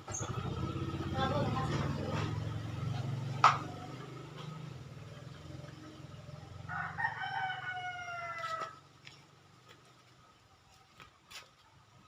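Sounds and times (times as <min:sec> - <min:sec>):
two-stroke motorcycle engine running: 0:00.0 - 0:06.7
rooster crowing: 0:06.5 - 0:08.9.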